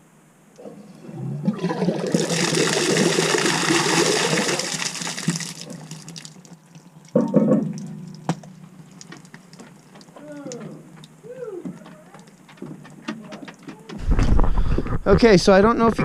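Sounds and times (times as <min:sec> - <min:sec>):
toilet flushing: 0:00.6 - 0:10.0.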